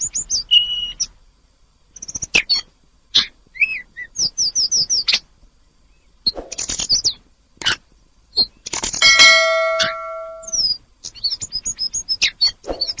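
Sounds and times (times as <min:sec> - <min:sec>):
rapid high notes: 0:09.0 - 0:10.5
bell-like clang ringing: 0:09.0 - 0:10.6.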